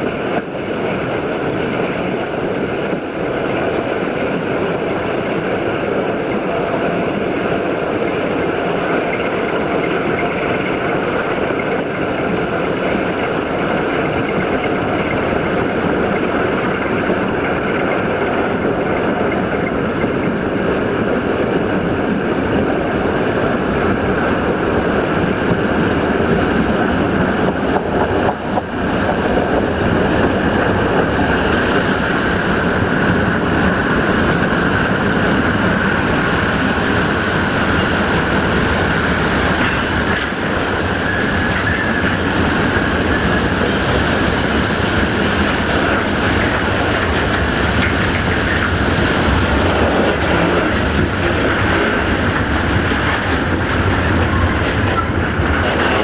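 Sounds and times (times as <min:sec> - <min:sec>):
train wheels rolling on rails: 0:00.0 - 0:56.0.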